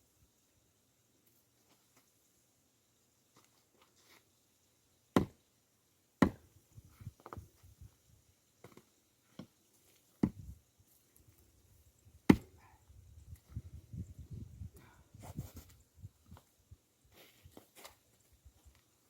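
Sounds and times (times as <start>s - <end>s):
axe chopping firewood logs: 5.1s - 5.4s, 6.2s - 6.5s, 10.2s - 10.5s, 12.2s - 12.6s.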